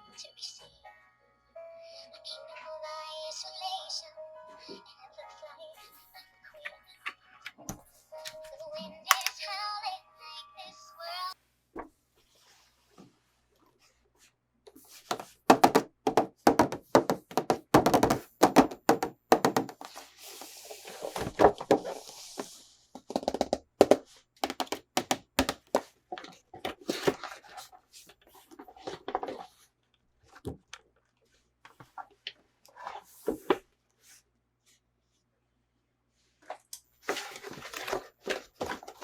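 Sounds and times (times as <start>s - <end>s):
plastic pieces clicking and tapping: 9.1s - 9.5s, 15.1s - 19.9s, 23.0s - 26.8s.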